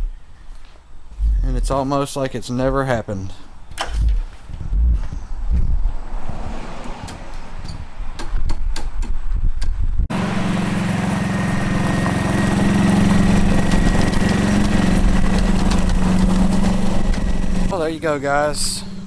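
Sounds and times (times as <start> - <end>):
wind rumbling on microphone: 1.2 - 1.8, 3.7 - 10.1
sharp clicks: 3.7 - 5.0
golf cart engine running: 10.1 - 17.9.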